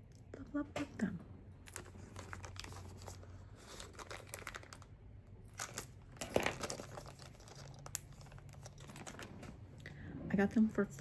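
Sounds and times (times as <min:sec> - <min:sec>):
packaging crinkling: 0:01.6 - 0:09.6.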